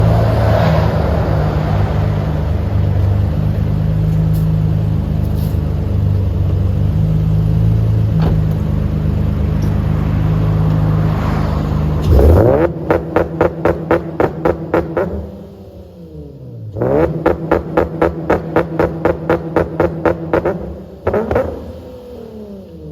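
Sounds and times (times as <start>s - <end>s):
car engine revving: 0.0s - 22.9s
engine stuttering on rev limiter: 11.3s - 15.4s, 16.7s - 22.8s.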